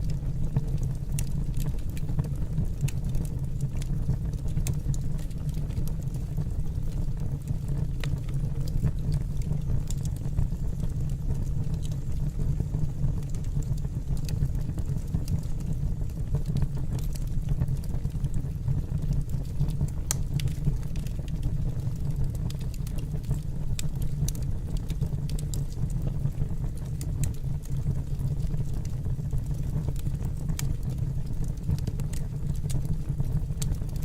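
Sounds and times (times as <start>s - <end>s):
fire crackling and popping: 0.0s - 34.0s.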